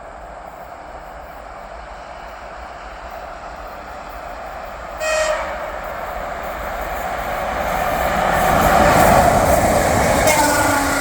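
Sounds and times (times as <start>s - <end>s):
oncoming train noise: 0.0s - 11.0s
train horn blast: 5.0s - 5.9s, 10.2s - 11.0s.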